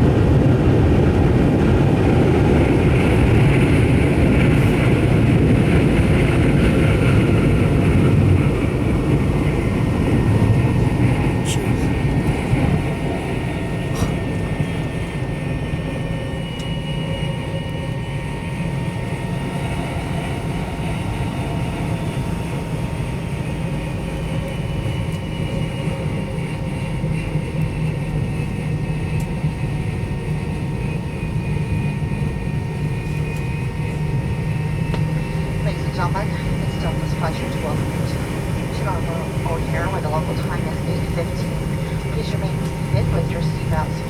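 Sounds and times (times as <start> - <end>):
jet engine drone in cabin: 0.0 - 44.0
faint high whine: 34.6 - 44.0.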